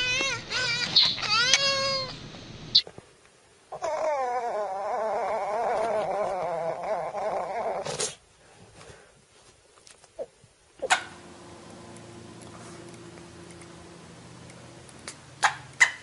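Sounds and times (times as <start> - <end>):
animal howling: 3.8 - 7.8.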